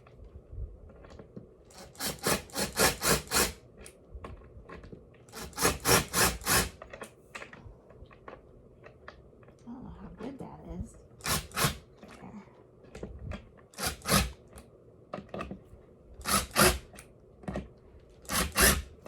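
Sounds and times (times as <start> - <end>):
screws rasping into particleboard: 1.7 - 3.6, 5.3 - 6.8, 11.2 - 11.8, 13.8 - 14.4, 16.2 - 17.0, 18.2 - 18.9.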